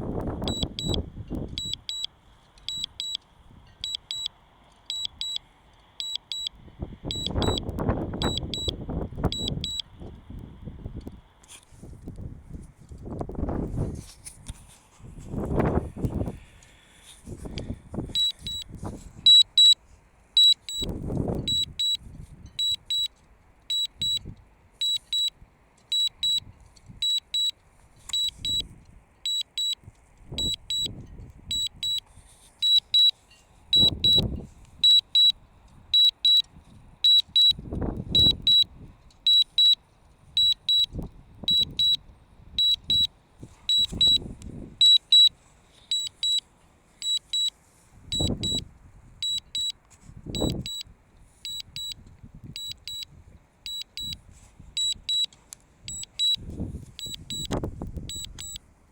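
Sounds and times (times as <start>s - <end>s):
wind rumbling on microphone: 0.0s - 1.8s, 6.6s - 16.6s, 17.2s - 19.3s, 20.8s - 22.7s, 30.2s - 32.2s, 33.7s - 34.9s, 35.8s - 39.0s, 40.3s - 44.8s, 48.0s - 49.3s, 50.1s - 50.8s, 55.9s - 58.5s
high-pitched double beeps: 0.4s - 2.1s, 2.7s - 3.2s, 3.8s - 4.3s, 4.9s - 5.4s, 6.0s - 6.5s, 7.1s - 9.8s, 18.2s - 18.7s, 19.3s - 19.8s, 20.4s - 23.1s, 23.7s - 25.3s, 25.9s - 26.4s, 27.0s - 27.5s, 28.1s - 28.6s, 29.3s - 29.8s, 30.4s - 32.0s, 32.6s - 33.1s, 33.8s - 35.4s, 36.0s - 38.7s, 39.3s - 39.8s, 40.4s - 42.0s, 42.6s - 43.1s, 43.7s - 45.3s, 45.9s - 46.4s, 48.1s - 48.6s, 49.2s - 49.8s, 50.4s - 50.8s, 51.5s - 52.0s, 52.6s - 53.0s, 53.7s - 54.2s, 55.9s - 56.4s, 57.0s - 58.6s.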